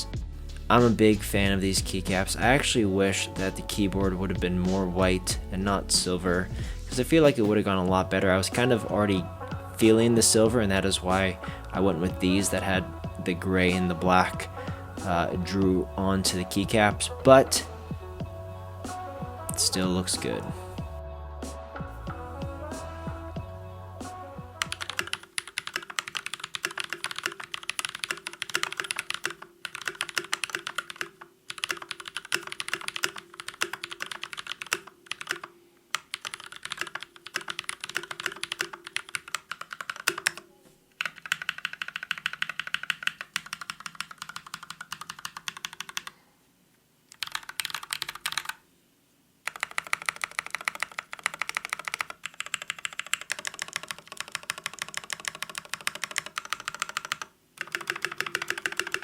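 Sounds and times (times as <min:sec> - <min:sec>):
mechanical keyboard typing: 0:24.6 - 0:40.4, 0:41.0 - 0:46.1, 0:47.1 - 0:48.6, 0:49.4 - 0:59.0.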